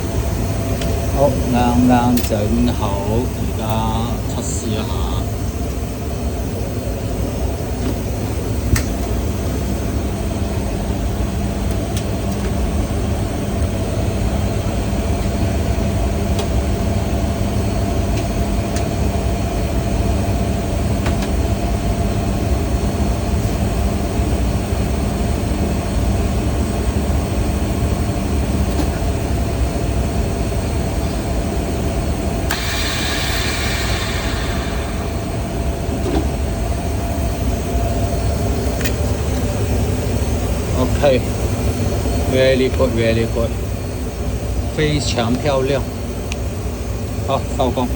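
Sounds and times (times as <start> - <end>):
vacuum pump droning: 0.0 - 47.9
click: 32.5 - 35.4
hissing rush: 32.5 - 38.3.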